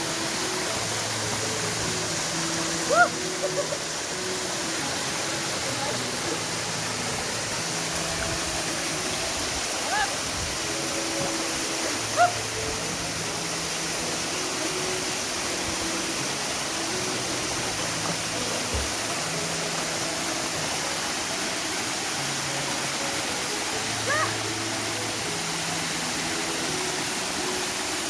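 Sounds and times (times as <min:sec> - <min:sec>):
waterfall pouring into pool: 0:00.0 - 0:28.0.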